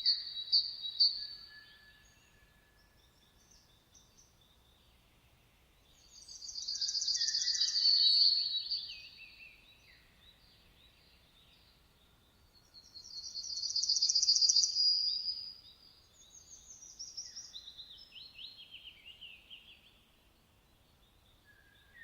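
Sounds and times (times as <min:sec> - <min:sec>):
birds chirping: 0:06.0 - 0:11.8.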